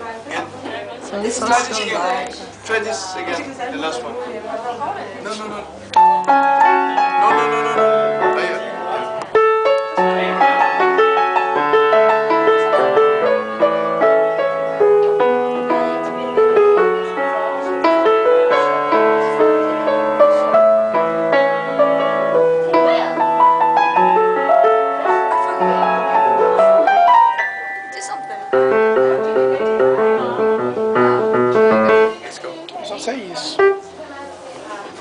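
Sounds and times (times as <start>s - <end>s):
piano playing: 5.9s - 32.4s, 33.3s - 34.0s.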